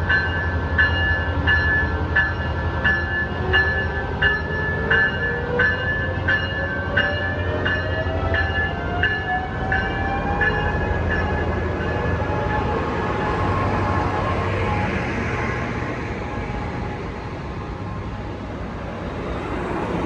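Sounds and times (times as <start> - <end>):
train bell ringing: 0.0 - 13.5
rising whine: 9.0 - 20.0.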